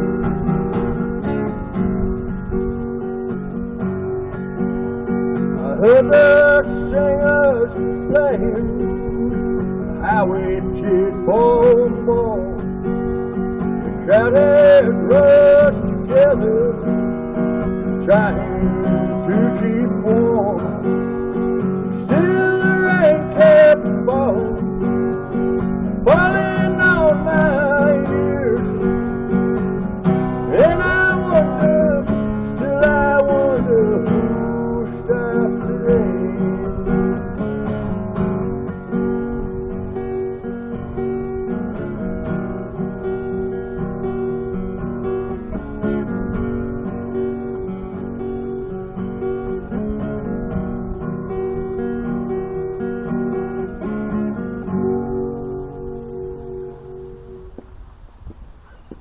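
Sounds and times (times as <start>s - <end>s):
acoustic guitar strumming: 0.0s - 59.0s
person singing: 22.1s - 24.6s, 26.1s - 28.8s, 30.4s - 36.4s.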